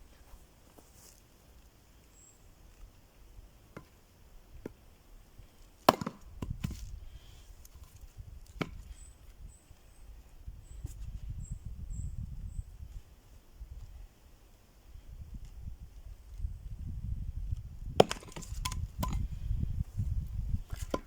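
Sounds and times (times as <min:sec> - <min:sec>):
axe chopping wood: 0:05.8 - 0:06.8, 0:17.9 - 0:19.3, 0:20.7 - 0:21.0.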